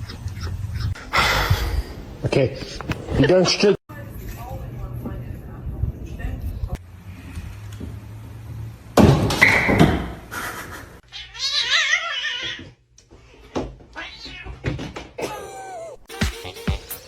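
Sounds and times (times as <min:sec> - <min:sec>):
cat meowing and yowling: 0:11.1 - 0:12.6.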